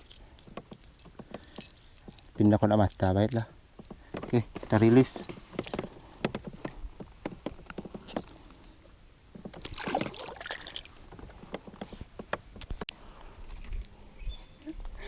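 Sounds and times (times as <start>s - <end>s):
water splashing: 9.6s - 11.0s.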